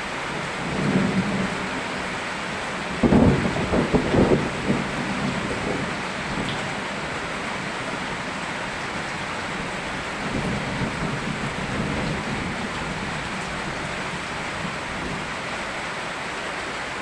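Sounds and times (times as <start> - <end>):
thunder rumbling: 0.0 - 8.3, 8.9 - 15.4
rain hissing: 0.0 - 17.0.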